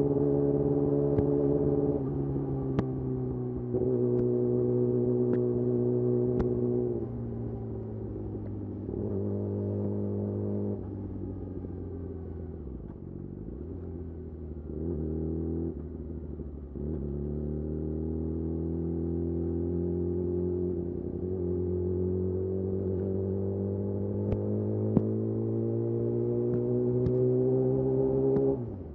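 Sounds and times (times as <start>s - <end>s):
motorcycle engine revving: 16.6s - 28.9s.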